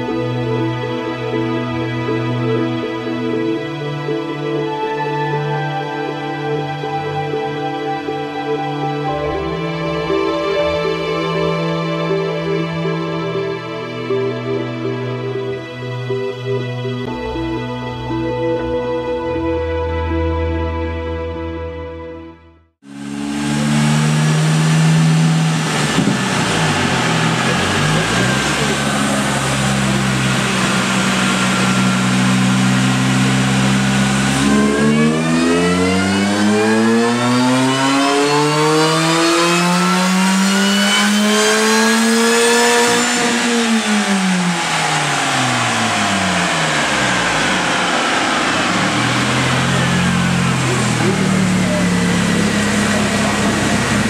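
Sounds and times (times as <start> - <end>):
car engine on dyno: 22.8 - 54.0
supercharger whine: 22.8 - 54.0.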